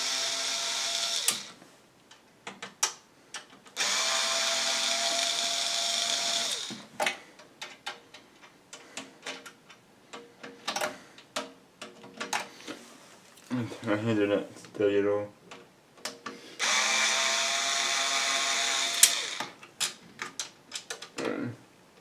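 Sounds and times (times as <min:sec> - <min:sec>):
power drill motor running: 0:00.0 - 0:01.6, 0:03.8 - 0:06.8, 0:16.6 - 0:19.6.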